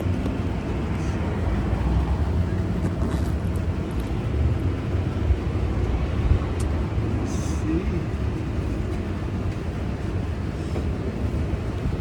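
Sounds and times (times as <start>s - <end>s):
low rumble of street traffic: 0.0s - 12.0s.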